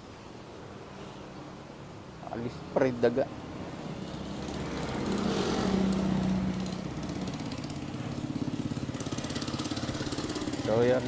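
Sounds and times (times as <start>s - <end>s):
small engine throbbing: 4.0s - 11.0s.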